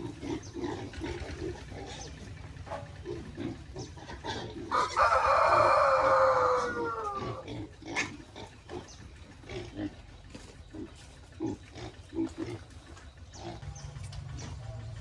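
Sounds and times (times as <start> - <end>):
pig crying loudly: 0.0 - 8.8
pigs grunting: 0.0 - 15.0.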